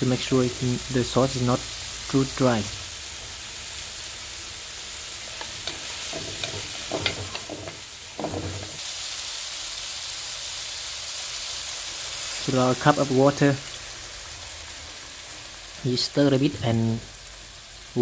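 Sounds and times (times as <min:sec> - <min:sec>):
vegetables sizzling in oil: 0:00.0 - 0:18.0
stirring clicks and scrapes: 0:05.4 - 0:08.8.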